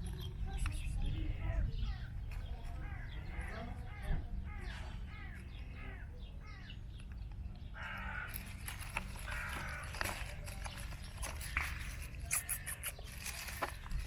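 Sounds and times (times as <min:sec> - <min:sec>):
crow cawing: 0:02.7 - 0:06.7, 0:07.7 - 0:10.3
rustling: 0:08.2 - 0:14.0.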